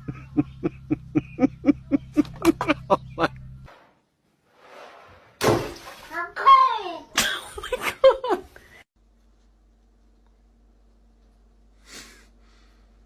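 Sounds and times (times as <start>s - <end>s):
steady low hum: 0.0s - 3.7s.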